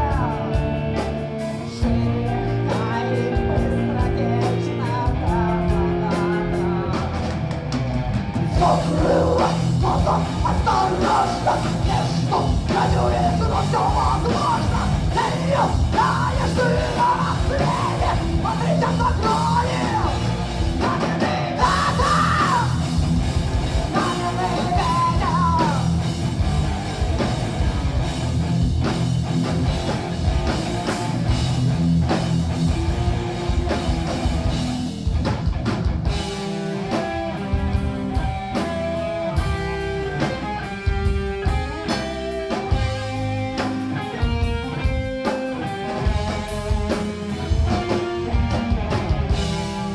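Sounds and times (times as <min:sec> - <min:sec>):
guitar melodic line: 0:00.0 - 0:49.9
heavy metal band playing live: 0:00.0 - 0:49.9
singer shouting and singing: 0:01.6 - 0:07.5, 0:08.4 - 0:23.2, 0:23.8 - 0:26.1.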